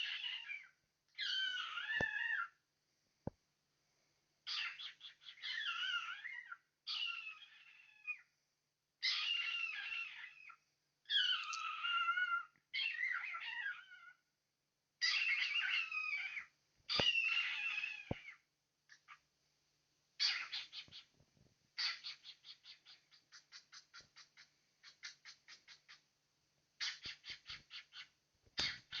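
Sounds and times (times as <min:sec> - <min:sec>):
cockatiel chattering: 0:09.0 - 0:14.1, 0:15.0 - 0:19.2, 0:20.2 - 0:21.1, 0:21.8 - 0:26.0, 0:26.8 - 0:29.0.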